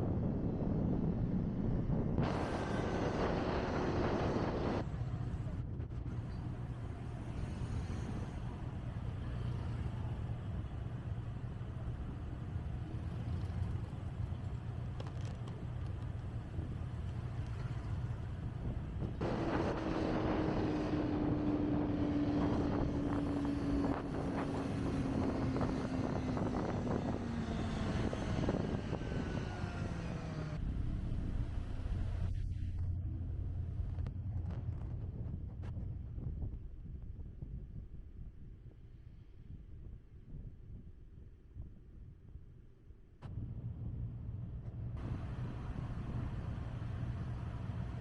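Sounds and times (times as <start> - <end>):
wind noise: 0.0 - 48.0
motorcycle engine at speed: 6.4 - 37.0.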